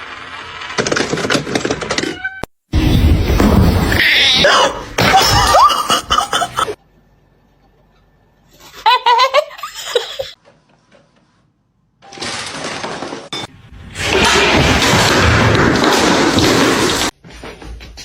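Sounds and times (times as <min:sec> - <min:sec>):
person laughing: 0:05.1 - 0:06.8, 0:08.6 - 0:10.4.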